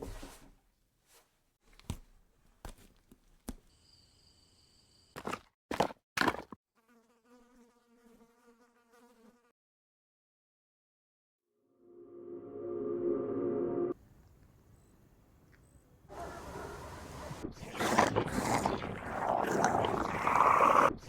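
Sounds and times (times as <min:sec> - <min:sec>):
flying insect buzzing: 0:06.8 - 0:09.5.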